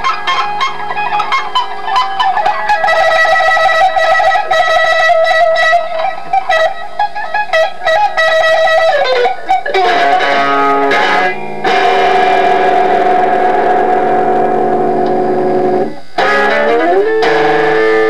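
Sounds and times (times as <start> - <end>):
electric guitar solo: 0.0 - 18.0.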